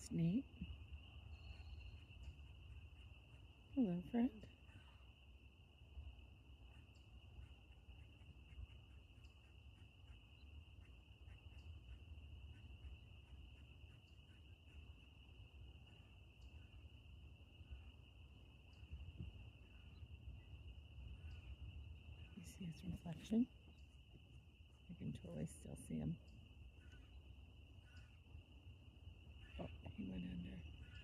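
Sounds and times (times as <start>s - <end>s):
crickets trilling: 0.0s - 31.0s.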